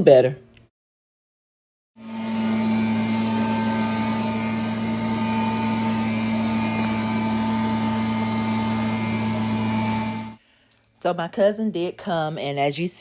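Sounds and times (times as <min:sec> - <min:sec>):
leaf blower engine running: 0:02.0 - 0:10.4.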